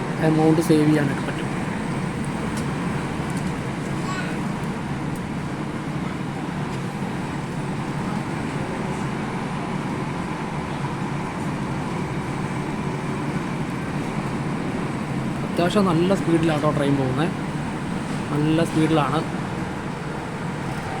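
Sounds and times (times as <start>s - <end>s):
diesel train engine: 0.0s - 21.0s.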